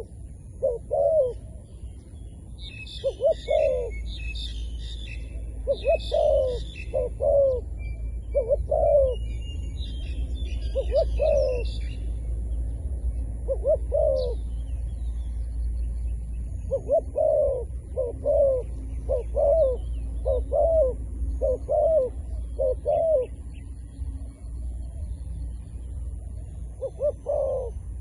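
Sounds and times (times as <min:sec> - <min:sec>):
dove cooing: 0:00.0 - 0:01.7, 0:02.9 - 0:04.2, 0:05.4 - 0:09.4, 0:10.6 - 0:12.0, 0:13.4 - 0:14.6, 0:16.6 - 0:25.2, 0:26.3 - 0:28.0
small birds chirping: 0:00.0 - 0:28.0.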